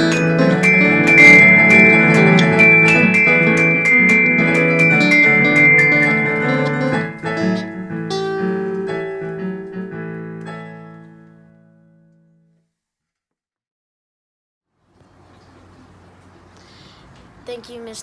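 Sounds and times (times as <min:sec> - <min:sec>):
piano music: 0:00.0 - 0:12.3.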